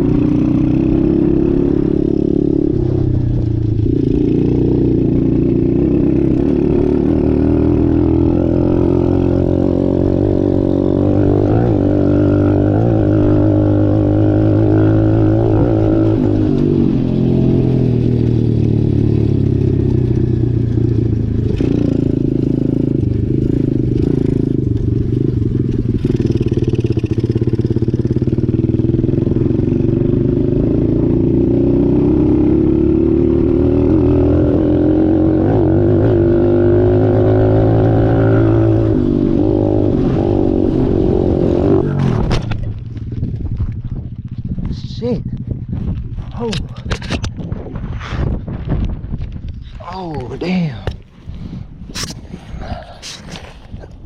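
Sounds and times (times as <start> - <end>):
dirt bike engine revving: 0.0 - 42.6.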